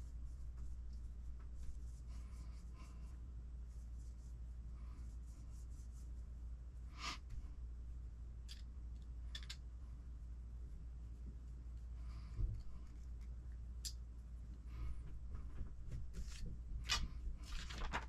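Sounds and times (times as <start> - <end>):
light rubbing and ticking of parts: 0.0 - 4.4
steady low hum: 0.0 - 18.0
small clicks: 8.5 - 9.6.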